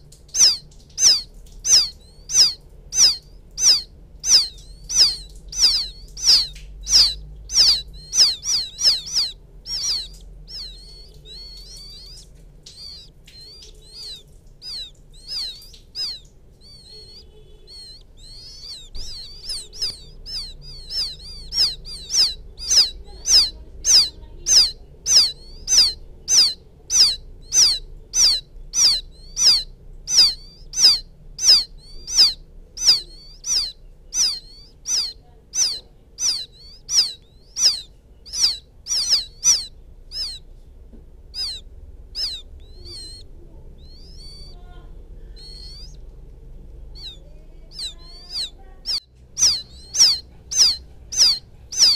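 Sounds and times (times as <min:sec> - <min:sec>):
quail chicks peeping: 0:00.0 - 0:51.9.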